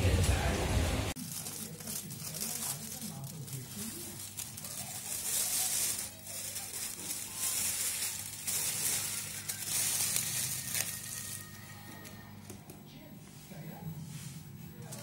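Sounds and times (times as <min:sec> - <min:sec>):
aluminium foil crinkling: 0:01.2 - 0:12.7, 0:14.8 - 0:15.0.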